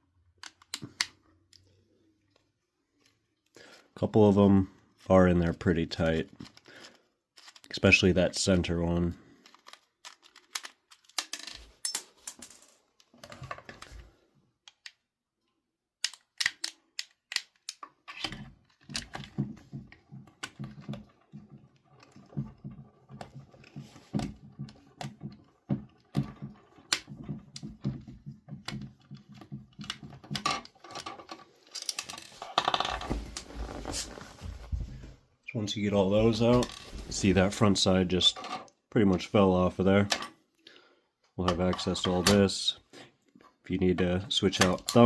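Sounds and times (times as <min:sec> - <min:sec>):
handling plastic parts: 0:05.7 - 0:15.0, 0:16.0 - 0:35.1.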